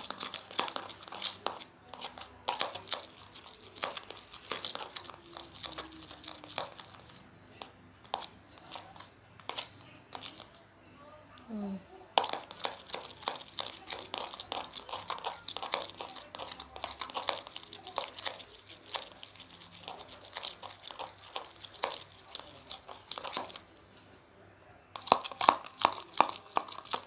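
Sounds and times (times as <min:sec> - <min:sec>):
slime shaken in plastic container: 0:00.0 - 0:07.2, 0:12.2 - 0:23.6, 0:25.0 - 0:27.0.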